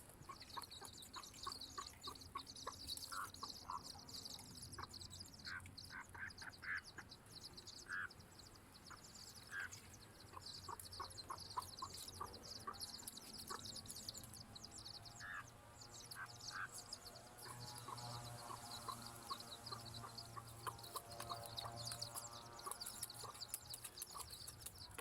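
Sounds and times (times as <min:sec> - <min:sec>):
ducks quacking: 0:03.1 - 0:03.9, 0:09.4 - 0:13.7, 0:15.2 - 0:15.5
high-pitched chirping: 0:10.7 - 0:25.0.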